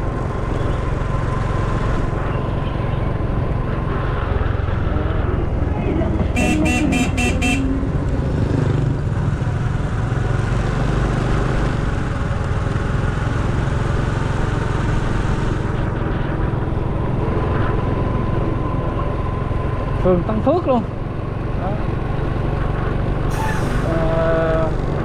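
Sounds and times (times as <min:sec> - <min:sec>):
motorcycle engine rumble: 0:00.0 - 0:25.0
vehicle horn short beeps: 0:06.3 - 0:07.9.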